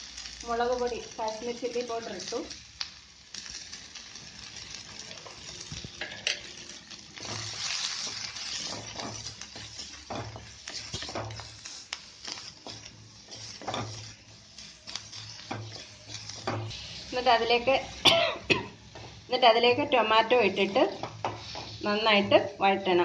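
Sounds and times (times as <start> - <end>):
onions sizzling in hot oil: 0.0 - 23.0
spatula scraping and knocking pan: 5.3 - 16.8, 20.6 - 22.6.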